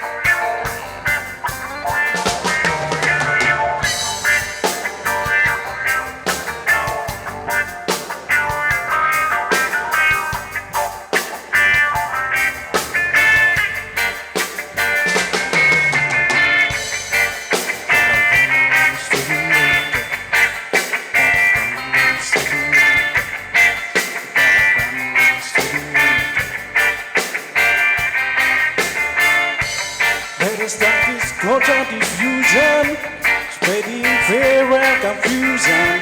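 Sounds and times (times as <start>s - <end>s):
guitar: 0.0s - 36.0s
live reggae band playing: 0.0s - 36.0s
steady drum beat: 0.0s - 36.0s.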